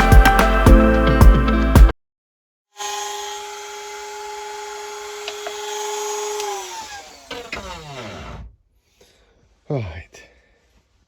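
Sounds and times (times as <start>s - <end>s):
electric power tool whining: 2.8s - 8.5s.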